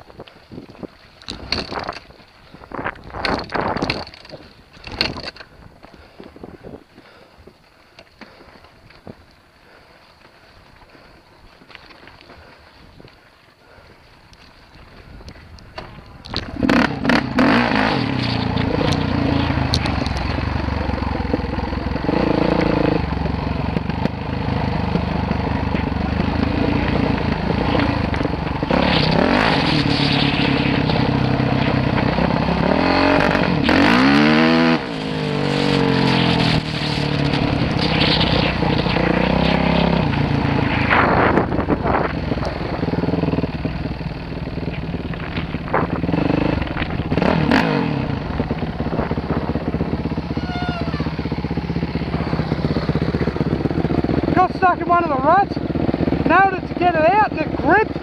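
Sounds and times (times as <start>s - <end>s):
dirt bike engine revving: 16.3s - 58.0s.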